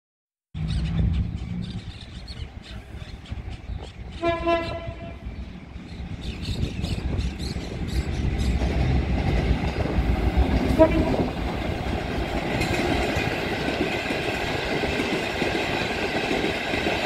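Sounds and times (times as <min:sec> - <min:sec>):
engine and wheels rumble: 0:00.6 - 0:17.0
train horn blast: 0:04.1 - 0:05.3, 0:10.7 - 0:11.5
rail clicks: 0:05.8 - 0:17.0.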